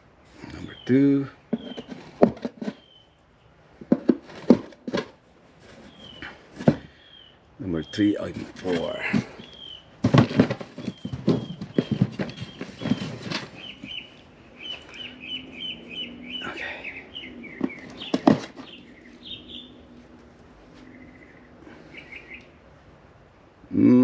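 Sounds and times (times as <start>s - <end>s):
small bird chirping: 0.5s - 3.5s, 6.9s - 9.9s, 10.7s - 19.8s, 20.8s - 22.6s.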